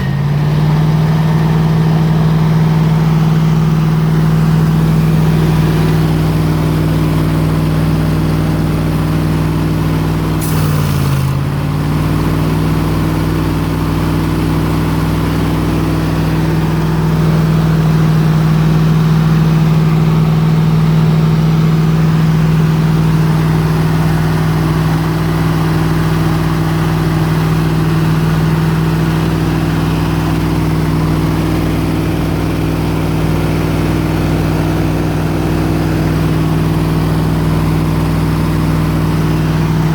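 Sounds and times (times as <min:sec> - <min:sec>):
air compressor engine running: 0:00.0 - 0:39.9
short hiss: 0:10.4 - 0:11.4.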